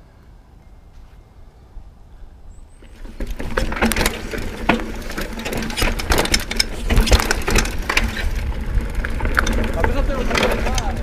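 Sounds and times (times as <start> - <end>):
bike tyres on loose rock: 2.6 - 11.0
bike rattling and clicking: 2.7 - 11.0.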